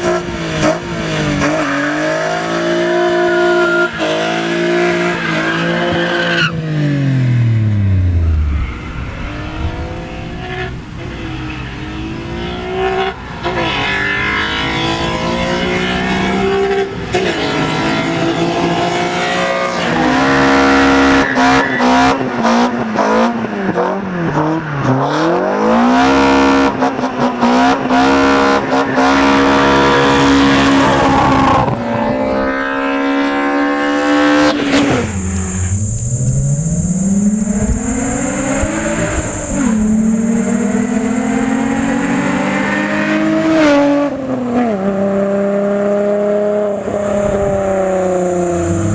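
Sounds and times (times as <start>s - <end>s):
car engine revving: 0.0s - 48.9s
tyre squeal: 1.4s - 6.6s.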